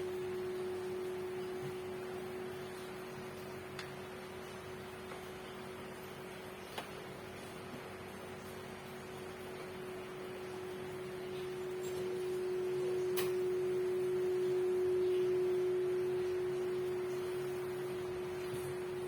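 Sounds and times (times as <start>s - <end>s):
steady pure tone: 0.0s - 5.0s, 9.8s - 19.0s.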